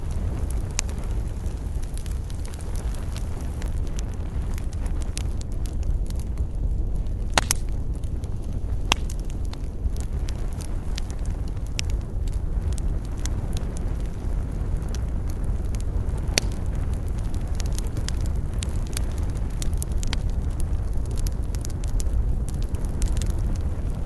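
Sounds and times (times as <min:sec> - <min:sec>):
campfire crackling: 0:00.0 - 0:24.0
low fire rumble: 0:00.0 - 0:24.0.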